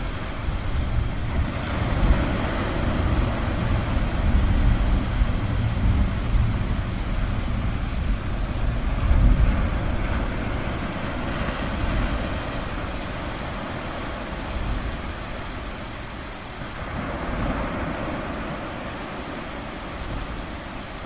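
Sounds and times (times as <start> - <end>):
distant thunder rumbling: 0.0 - 16.1
ocean surf: 0.0 - 21.0.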